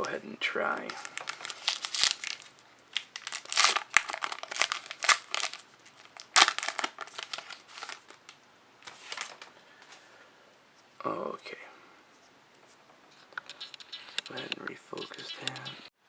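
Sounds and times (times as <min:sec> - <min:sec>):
crinkling and rustling: 0:00.0 - 0:10.0.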